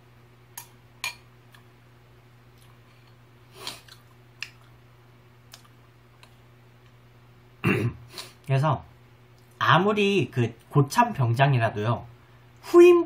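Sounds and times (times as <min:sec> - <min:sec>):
person chewing cereal: 0:02.5 - 0:04.8, 0:05.5 - 0:07.0.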